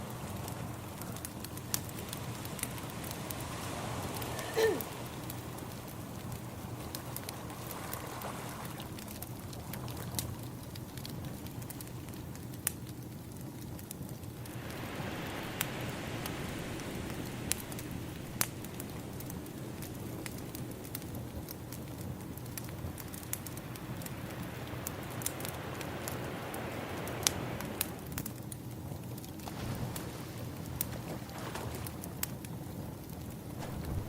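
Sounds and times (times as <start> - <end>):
ocean waves washing: 0.0 - 9.8, 14.4 - 21.4, 22.4 - 28.2, 33.6 - 34.0
wood fire crackling and popping: 0.0 - 34.0.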